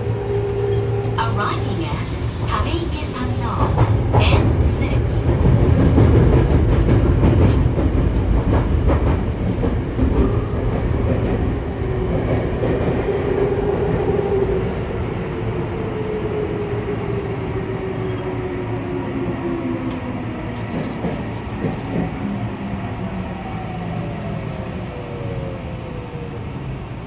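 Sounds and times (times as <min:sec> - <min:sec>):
electric train rumbling: 0:00.0 - 0:27.0
train motor whine: 0:05.0 - 0:09.2, 0:17.9 - 0:22.3.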